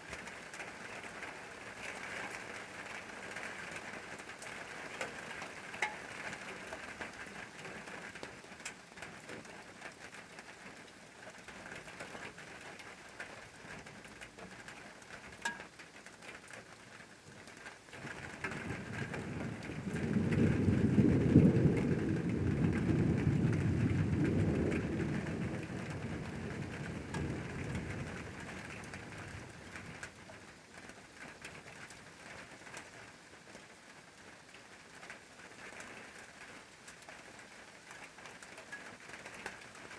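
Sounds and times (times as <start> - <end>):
steady rain falling: 0.0 - 39.9
low rumble of thunder: 18.1 - 30.1.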